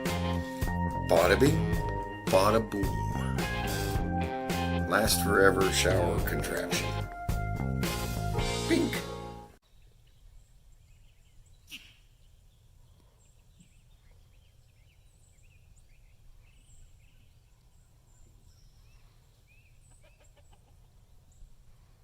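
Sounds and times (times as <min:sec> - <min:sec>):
small birds chirping: 0:09.6 - 0:22.0.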